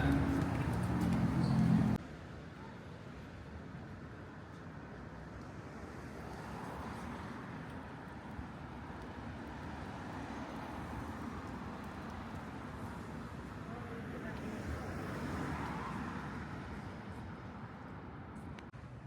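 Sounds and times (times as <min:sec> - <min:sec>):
road traffic hum: 0:00.0 - 0:02.2, 0:05.2 - 0:19.0.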